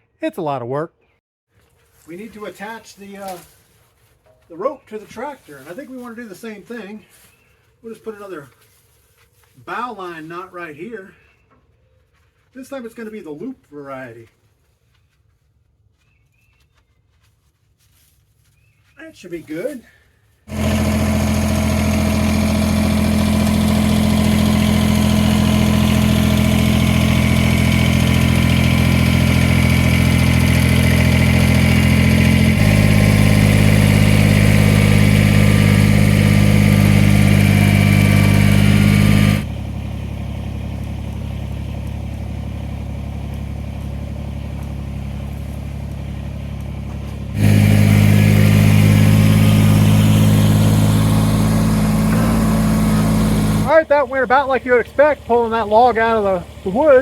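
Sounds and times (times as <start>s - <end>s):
tractor diesel engine running: 20.5s - 57.0s.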